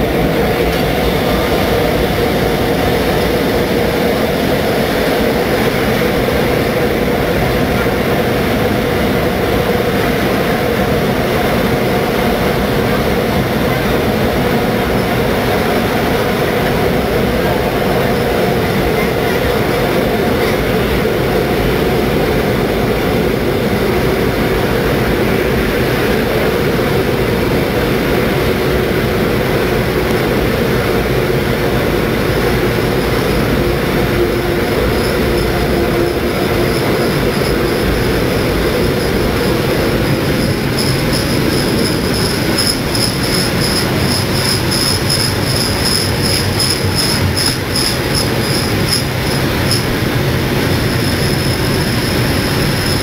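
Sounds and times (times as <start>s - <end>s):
train rumbling on rails: 0.0s - 53.0s
high wheel squeal: 32.7s - 53.0s.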